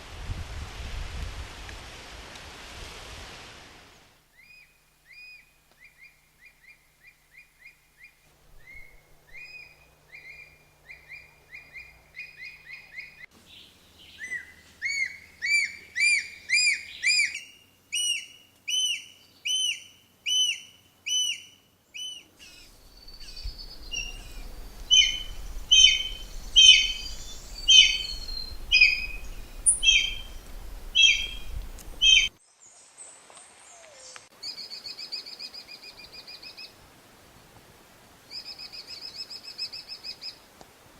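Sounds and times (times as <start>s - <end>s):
soft repeated bird chirps: 4.4s - 30.4s, 31.0s - 32.4s
whistled bird notes: 14.0s - 30.4s, 31.0s - 32.4s
low background rumble: 22.7s - 32.3s
sharp repeated bird notes: 24.9s - 30.3s.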